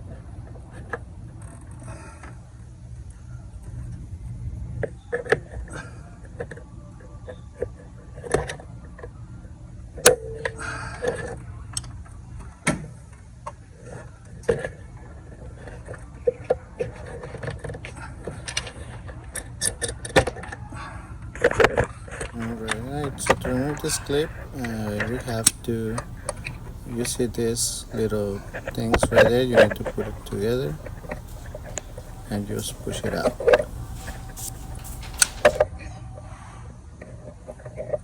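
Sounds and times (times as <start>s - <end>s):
steady low hum: 22.4s - 35.6s.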